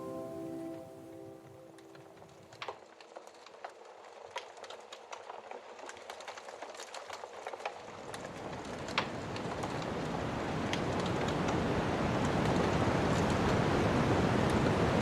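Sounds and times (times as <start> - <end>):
wood fire crackling and popping: 3.0 - 13.6.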